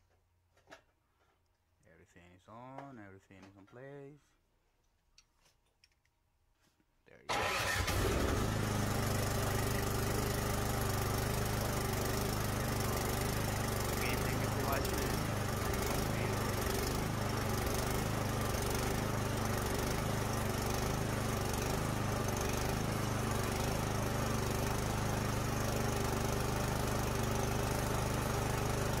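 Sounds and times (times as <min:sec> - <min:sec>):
snowblower engine running: 0:07.3 - 0:29.0.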